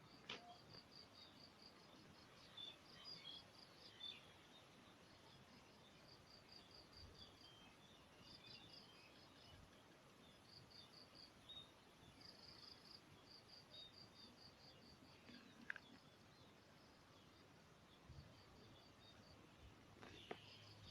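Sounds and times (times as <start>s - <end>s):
small bird chirps: 19.9s - 20.9s.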